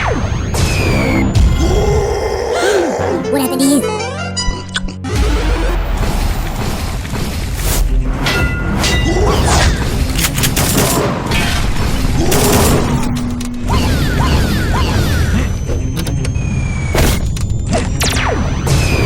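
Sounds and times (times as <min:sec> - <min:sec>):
loud background music: 0:00.0 - 0:16.0
cartoon booms and impact thuds: 0:05.1 - 0:10.1
whooshes: 0:05.4 - 0:08.3.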